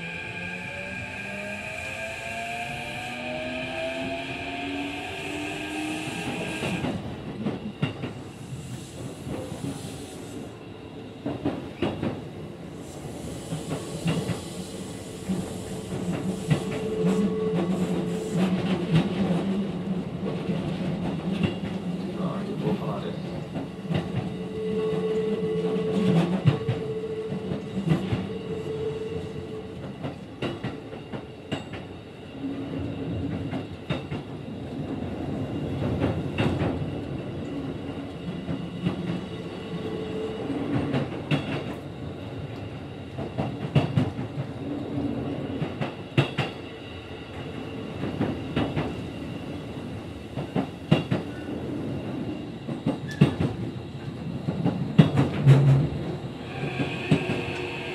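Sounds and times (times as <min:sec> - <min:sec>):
clacks over rail joints: 0:54.4 - 0:56.0.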